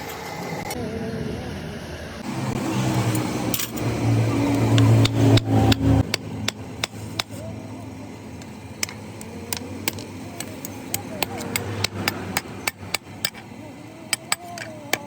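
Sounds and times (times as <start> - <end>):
hammer striking hot steel: 4.5 - 7.4, 8.3 - 15.0.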